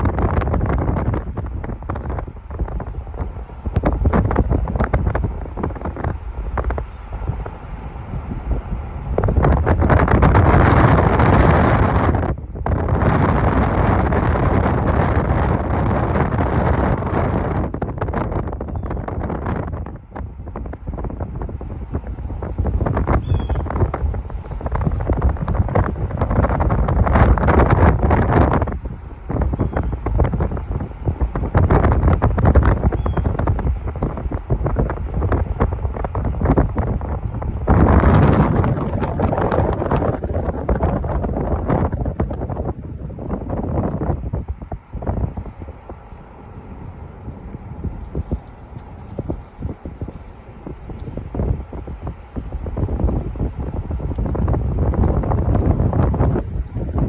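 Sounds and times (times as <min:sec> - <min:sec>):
rain pattering: 0:00.0 - 0:16.4, 0:19.4 - 0:57.0
strong wind through trees: 0:00.0 - 0:57.0
wind buffeting microphone: 0:00.0 - 0:57.0.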